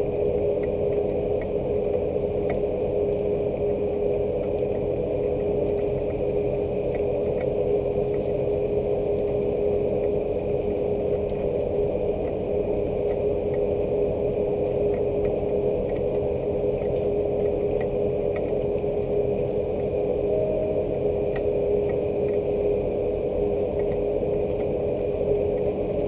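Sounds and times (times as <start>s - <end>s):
steady low hum: 0.0s - 26.0s
faint ticks: 0.5s - 3.3s, 6.9s - 8.4s, 11.1s - 12.4s, 13.0s - 13.7s, 14.9s - 19.1s, 23.8s - 24.7s, 25.5s - 25.8s.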